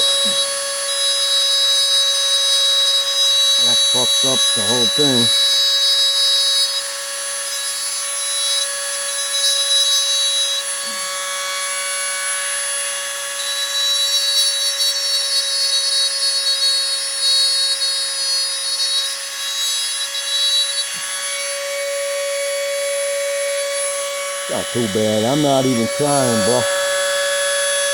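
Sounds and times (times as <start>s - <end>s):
bit grinding putty: 0.0s - 6.7s, 23.8s - 26.8s
rotary tool whining: 0.0s - 27.9s.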